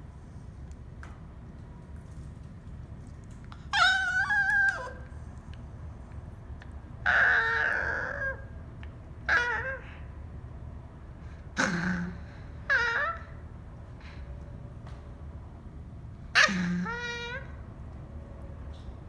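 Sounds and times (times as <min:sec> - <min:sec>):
dog whining: 0:03.6 - 0:05.3, 0:07.0 - 0:08.5, 0:09.2 - 0:10.0, 0:11.6 - 0:13.4, 0:16.4 - 0:17.6.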